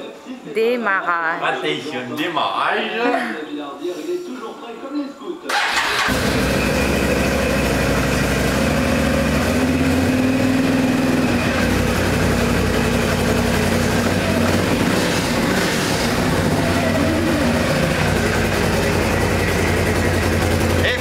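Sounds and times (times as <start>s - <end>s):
atv engine running: 5.6s - 21.0s.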